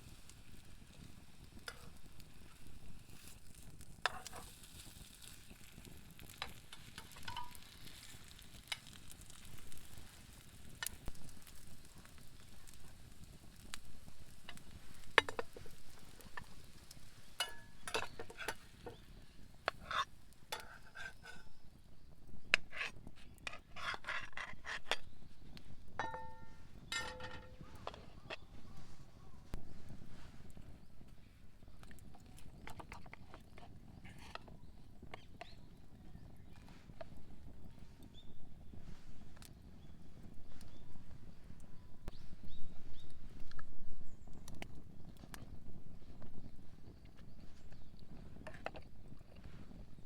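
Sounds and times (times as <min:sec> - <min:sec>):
campfire pops and clicks: 0:00.0 - 0:21.5, 0:30.4 - 0:40.8, 0:42.0 - 0:50.0
campfire hissing: 0:00.0 - 0:50.0.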